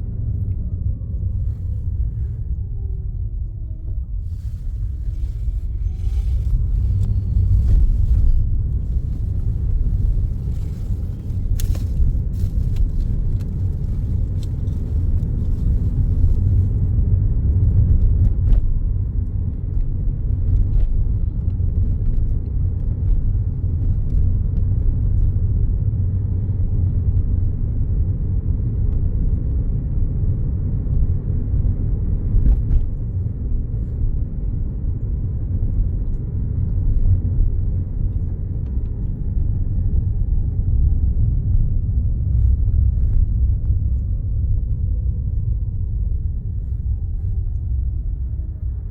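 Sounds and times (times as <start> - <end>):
car engine and tyres rumbling: 0.0 - 48.9.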